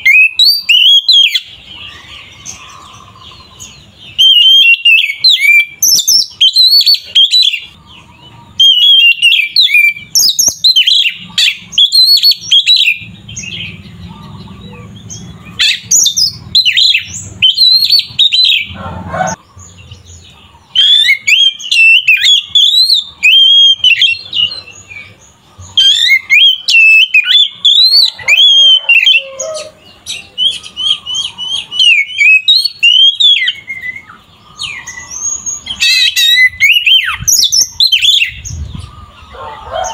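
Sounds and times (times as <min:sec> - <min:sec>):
bird singing whistled phrases: 0:00.0 - 0:02.0, 0:03.4 - 0:07.8, 0:08.6 - 0:13.7, 0:15.6 - 0:18.8, 0:20.8 - 0:25.1, 0:25.7 - 0:38.4.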